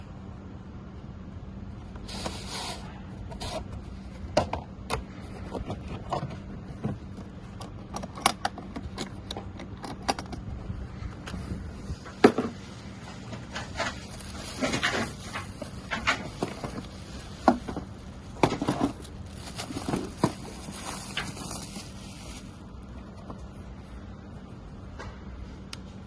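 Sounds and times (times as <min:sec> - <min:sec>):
faint steady hum: 0:00.0 - 0:26.0
handling clicks knocks and scrapes: 0:02.0 - 0:21.6.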